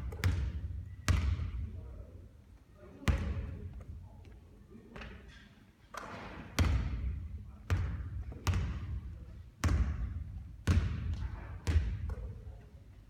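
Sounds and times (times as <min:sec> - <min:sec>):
basketball bouncing on court: 0:00.0 - 0:01.6, 0:03.0 - 0:03.6, 0:06.6 - 0:09.0, 0:09.6 - 0:12.3.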